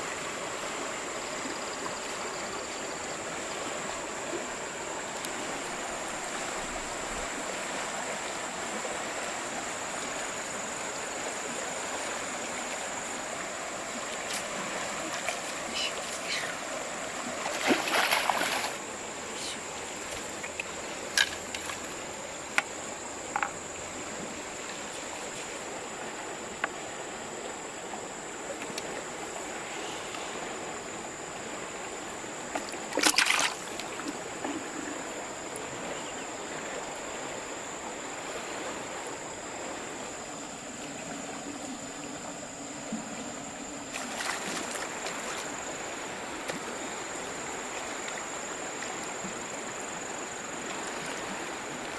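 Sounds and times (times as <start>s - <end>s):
river water rushing: 0.0s - 51.9s
sharp knocks or splashes: 17.4s - 18.8s, 32.5s - 34.6s.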